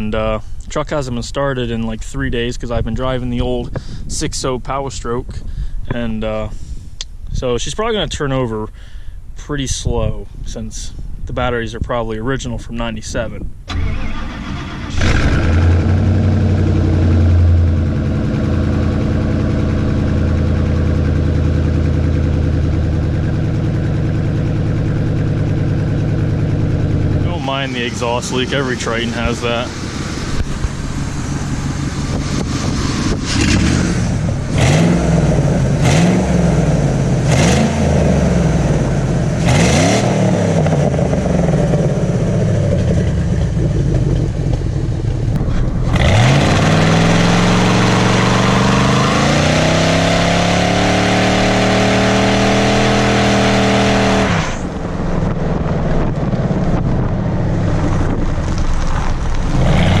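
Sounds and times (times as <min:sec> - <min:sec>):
truck engine revving: 0:13.7 - 1:00.0.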